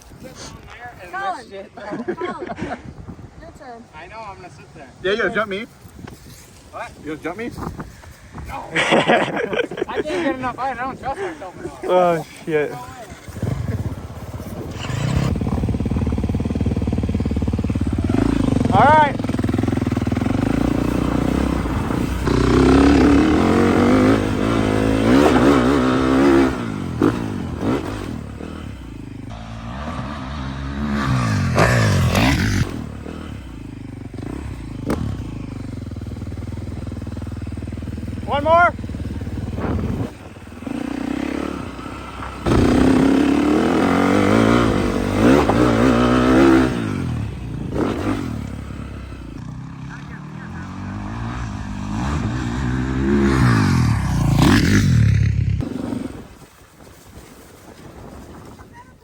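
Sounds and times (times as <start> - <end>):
small engine revving: 12.9 - 56.4.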